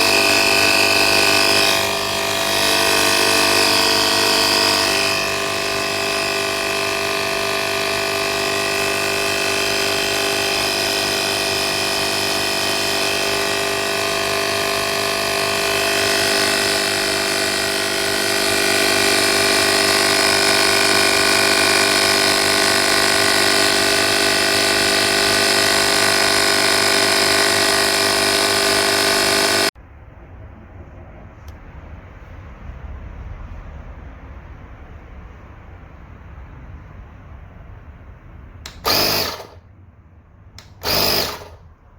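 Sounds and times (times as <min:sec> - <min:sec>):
air compressor humming: 0:00.0 - 0:29.8, 0:38.6 - 0:39.6, 0:40.6 - 0:41.6.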